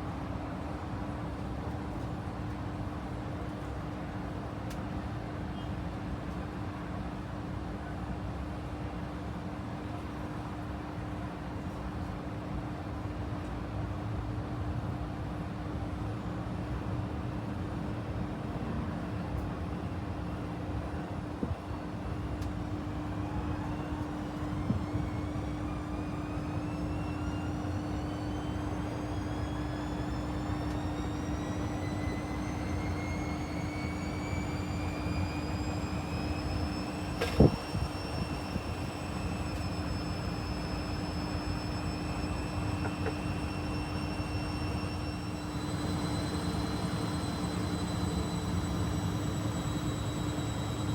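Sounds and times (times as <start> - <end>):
motor whine rising in pitch: 21.4 - 50.9
washing machine running: 21.9 - 50.9.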